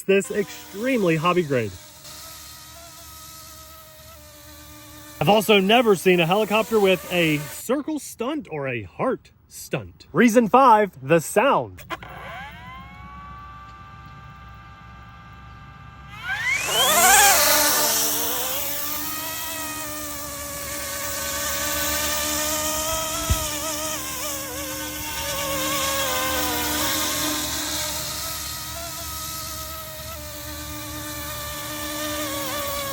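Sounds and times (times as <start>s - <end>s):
model helicopter rotor whine: 0.0s - 7.6s, 11.2s - 32.9s.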